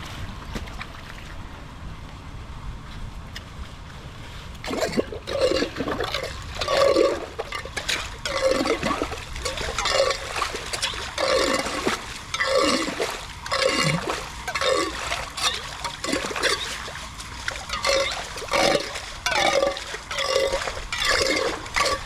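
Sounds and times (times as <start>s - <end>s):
steady water rush: 4.0s - 22.0s
water gurgling as it drains: 4.6s - 22.0s.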